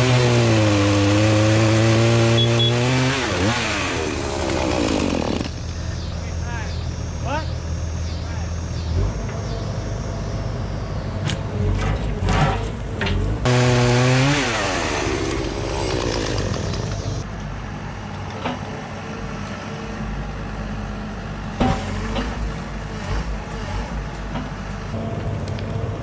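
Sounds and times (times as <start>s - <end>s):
chainsaw revving: 0.0s - 5.6s, 13.2s - 17.2s
low engine hum: 5.4s - 17.7s.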